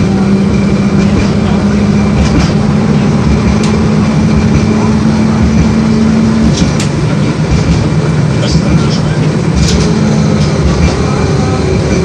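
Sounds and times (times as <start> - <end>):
tram running noise: 0.0 - 12.0.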